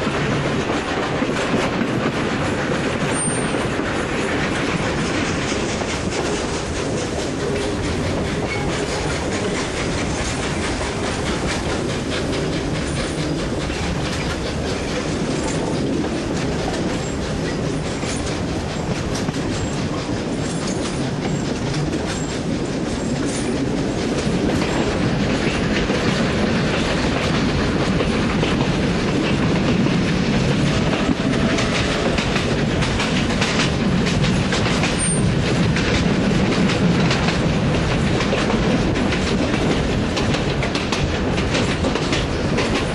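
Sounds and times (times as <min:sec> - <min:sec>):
train wheels clicking on rails: 0:00.0 - 0:42.9.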